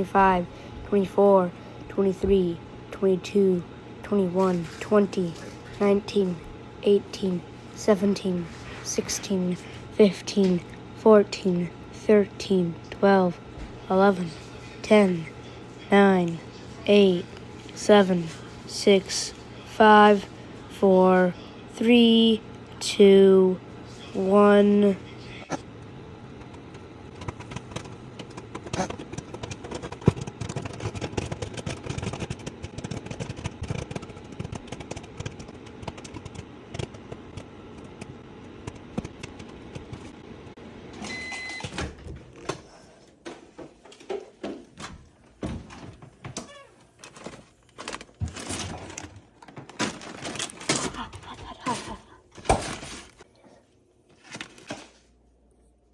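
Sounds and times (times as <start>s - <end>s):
microwave oven hum: 0.0s - 55.9s
popcorn popping: 25.5s - 40.5s
microwave beep: 40.9s - 42.0s.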